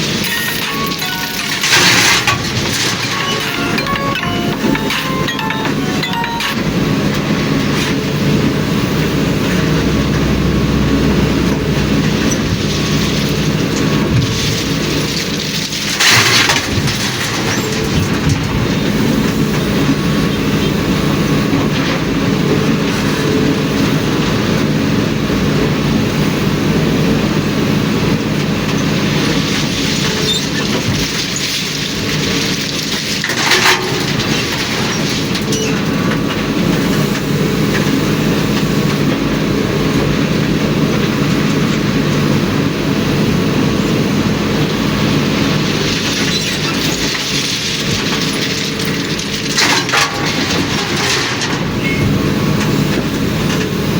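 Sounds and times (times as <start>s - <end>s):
continuous rattling: 0.0s - 24.9s, 45.8s - 53.9s
truck diesel engine running: 0.0s - 31.1s, 31.8s - 53.9s.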